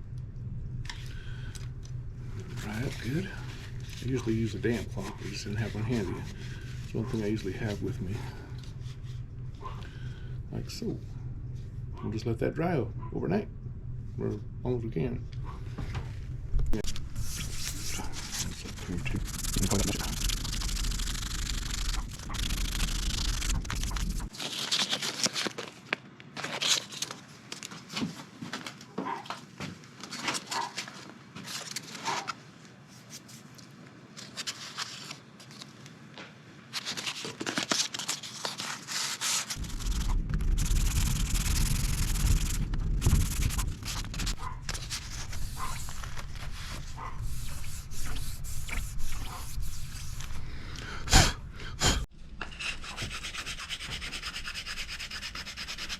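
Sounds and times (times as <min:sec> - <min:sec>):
sandpaper rasping on wood: 0:02.6 - 0:08.2, 0:17.2 - 0:24.3, 0:38.9 - 0:50.4, 0:52.5 - 0:55.9.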